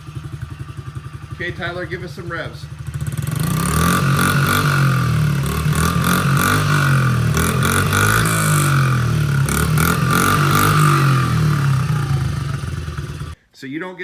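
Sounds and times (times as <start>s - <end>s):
small engine revving: 2.8s - 13.4s.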